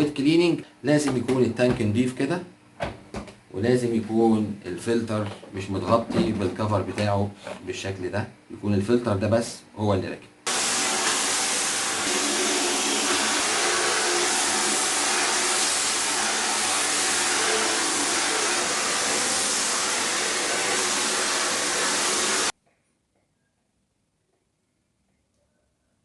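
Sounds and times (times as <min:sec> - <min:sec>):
vacuum cleaner running: 0:10.5 - 0:22.5.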